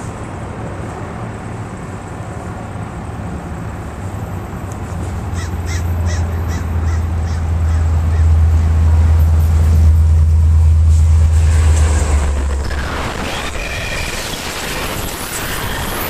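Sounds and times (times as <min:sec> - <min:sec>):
diesel locomotive rumble: 0:00.0 - 0:16.0
crow cawing: 0:05.3 - 0:08.7.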